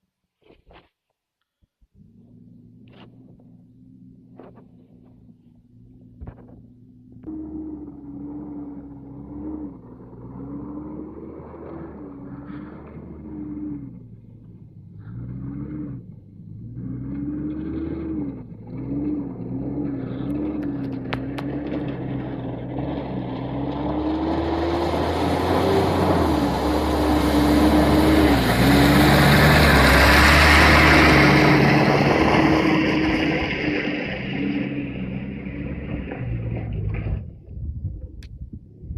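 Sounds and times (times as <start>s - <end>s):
car engine revving: 2.0s - 37.4s
tyres churning through mud and water: 7.3s - 37.2s.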